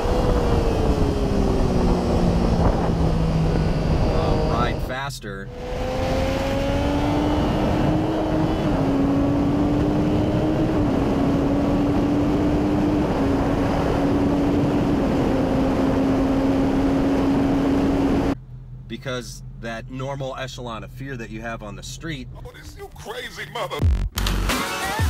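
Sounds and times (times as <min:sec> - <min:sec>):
motorcycle engine at high revs: 0:00.0 - 0:04.9, 0:05.5 - 0:18.4
heavy wind rush: 0:00.0 - 0:18.4.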